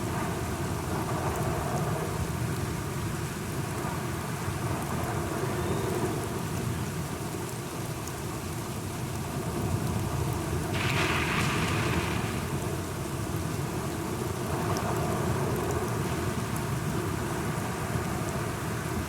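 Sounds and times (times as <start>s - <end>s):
steady rain falling: 0.0s - 19.0s
low thunder rumble: 10.6s - 15.6s.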